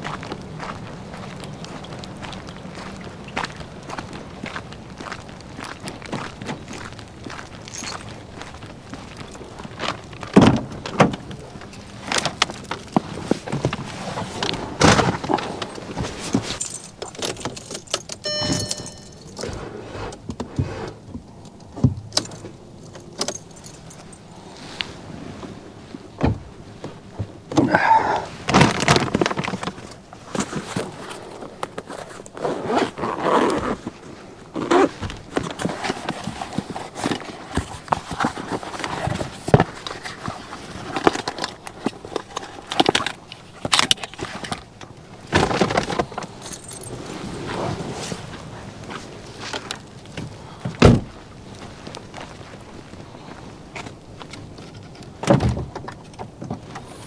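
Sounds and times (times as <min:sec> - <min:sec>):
keys jingling: 0:07.7 - 0:08.1, 0:15.6 - 0:19.7, 0:22.0 - 0:24.4, 0:46.2 - 0:47.7.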